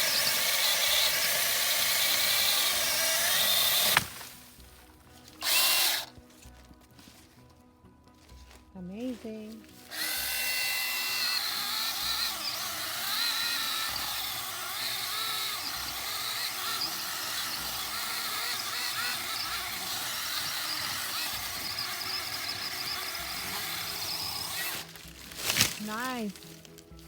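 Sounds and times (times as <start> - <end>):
mini chainsaw cutting wood: 0.0 - 4.6, 5.4 - 6.1, 9.8 - 26.3.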